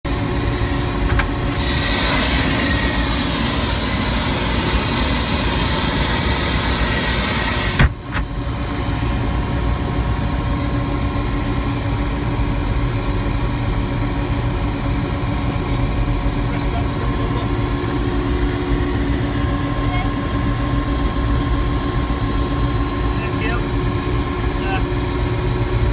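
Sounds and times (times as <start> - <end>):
helicopter engine and rotor drone: 0.1 - 25.9.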